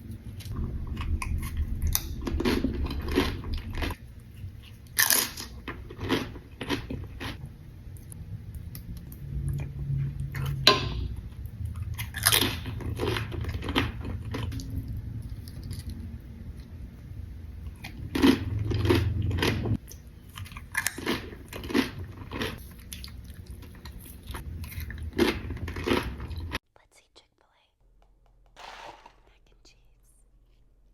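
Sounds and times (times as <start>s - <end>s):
crunching tortilla chips: 4.6s - 7.4s, 17.8s - 26.6s.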